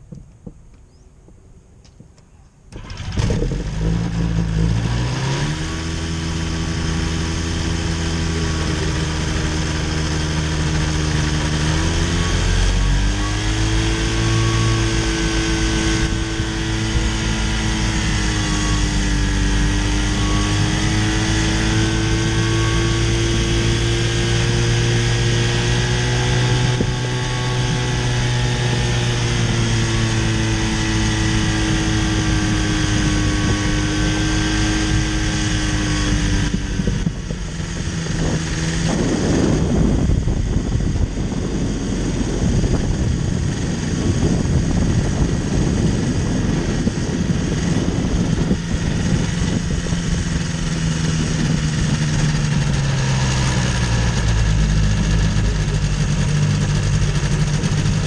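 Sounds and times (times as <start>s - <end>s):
low steady drone: 2.7s - 58.0s
propeller engine running: 2.7s - 58.0s.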